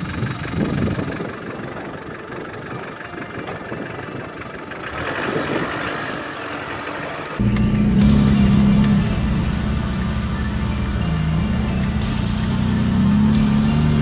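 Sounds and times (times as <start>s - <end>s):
car engine idling: 0.0s - 14.0s
music: 5.4s - 14.0s.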